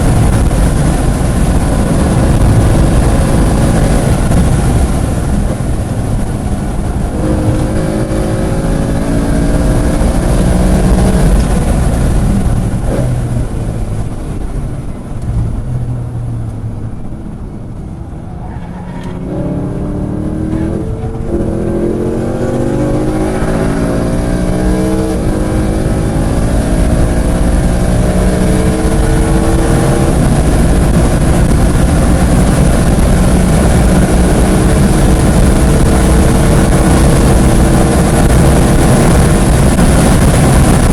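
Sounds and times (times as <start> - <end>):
race car engine accelerating: 0.0 - 14.4, 18.0 - 40.9
road and wind noise: 0.0 - 40.9.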